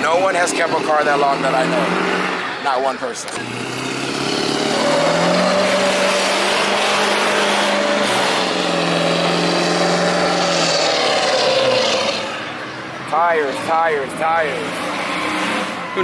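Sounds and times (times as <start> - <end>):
car engine running: 3.2 - 16.0.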